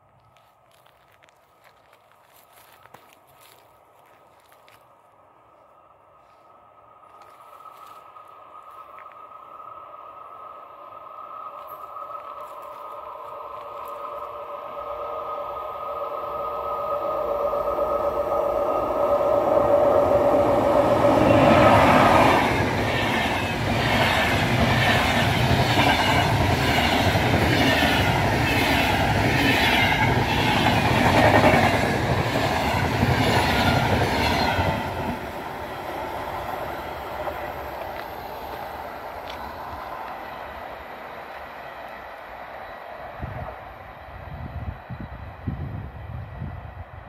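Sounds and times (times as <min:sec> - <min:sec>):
train passing at speed: 0:03.4 - 0:47.0
wheels clickety-clack over rails: 0:21.4 - 0:40.2.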